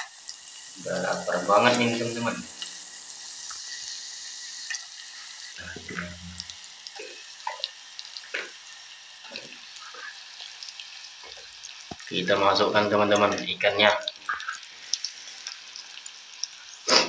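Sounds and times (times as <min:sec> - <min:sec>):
onion sizzling in a pan: 0:00.0 - 0:17.0.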